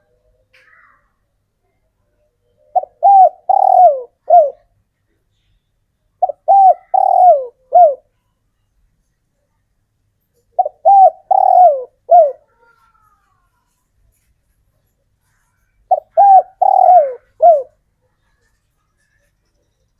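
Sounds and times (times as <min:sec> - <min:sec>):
dove cooing: 0:02.6 - 0:04.7, 0:06.2 - 0:08.1, 0:10.5 - 0:12.7, 0:15.9 - 0:17.8.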